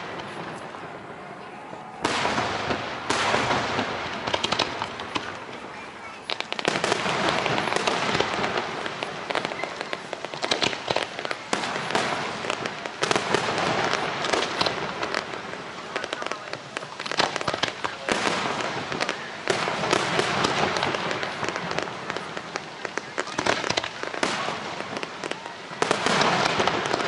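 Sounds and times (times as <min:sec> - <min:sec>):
fireworks crackling and popping: 0:00.0 - 0:27.0.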